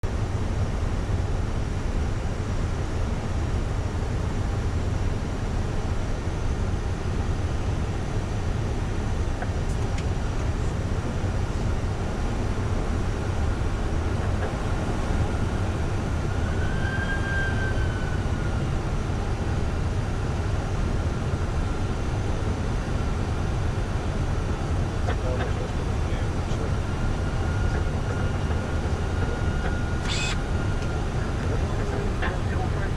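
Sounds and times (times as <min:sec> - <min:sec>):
aircraft cockpit noise: 0:00.0 - 0:32.9
faint short tone: 0:29.6 - 0:30.4.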